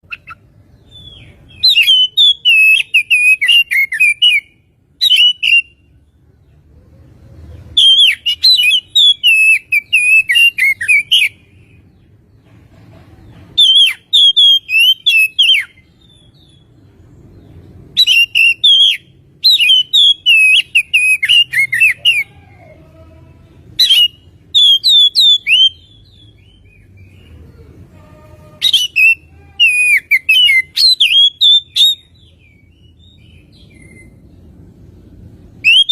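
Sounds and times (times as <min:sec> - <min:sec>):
bird singing rapid whistled notes: 0:00.0 - 0:05.9, 0:07.8 - 0:11.8, 0:13.6 - 0:22.3, 0:23.8 - 0:27.3, 0:28.6 - 0:34.3, 0:35.5 - 0:35.9.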